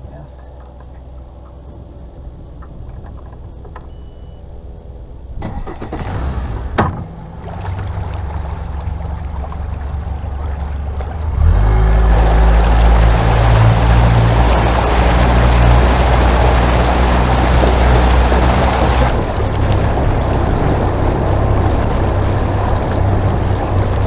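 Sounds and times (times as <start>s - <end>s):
boat engine: 0.0s - 24.0s
wind: 0.0s - 24.0s
rushing water: 5.6s - 24.0s.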